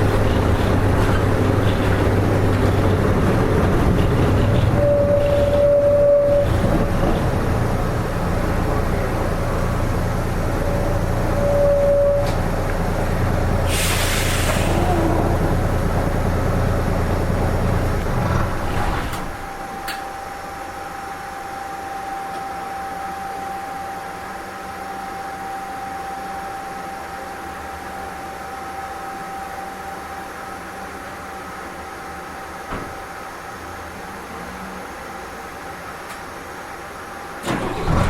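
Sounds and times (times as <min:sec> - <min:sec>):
bus diesel engine running: 0:00.0 - 0:21.9, 0:31.0 - 0:38.0
compressed air hiss: 0:13.7 - 0:14.8.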